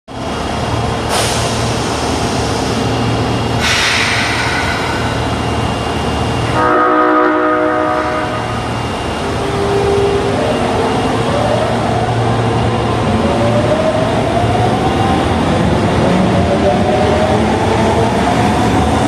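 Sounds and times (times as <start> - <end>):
train low hum: 0.1 - 19.0
train horn chord: 6.5 - 8.6.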